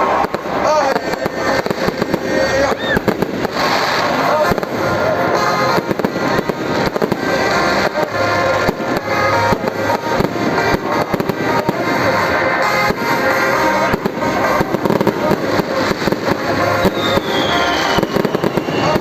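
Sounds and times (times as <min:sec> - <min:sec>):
fireworks bangs and crackling: 0:00.0 - 0:19.0
music playing: 0:00.0 - 0:19.0.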